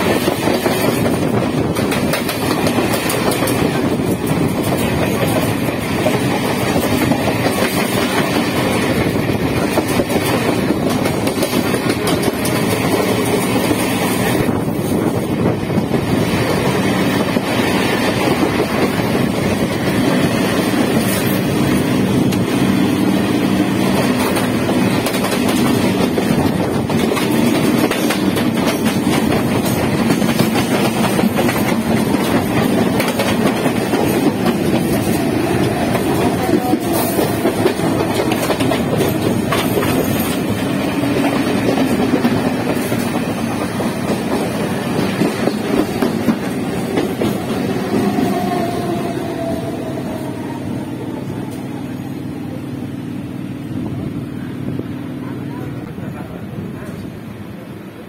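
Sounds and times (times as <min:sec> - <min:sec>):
wheels clacking over rail joints: 0:00.0 - 0:15.2, 0:23.8 - 0:49.7
train wheels rumbling on rails: 0:00.0 - 0:58.0.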